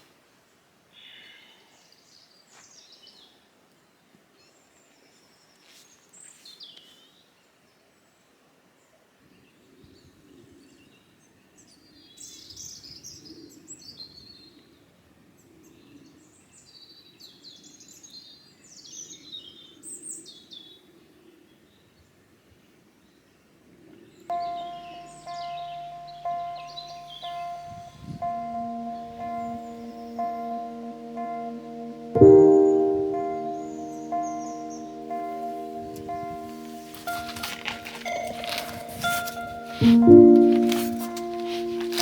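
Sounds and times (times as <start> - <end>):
songbirds chirping: 24.3 - 42.0.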